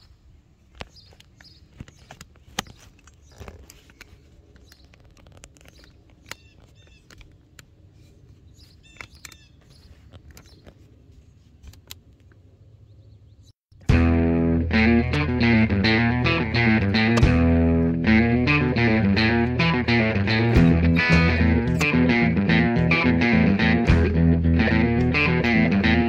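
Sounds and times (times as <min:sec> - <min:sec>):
bird chirping: 0:00.8 - 0:03.9, 0:04.6 - 0:07.2, 0:08.0 - 0:11.4, 0:12.8 - 0:13.6.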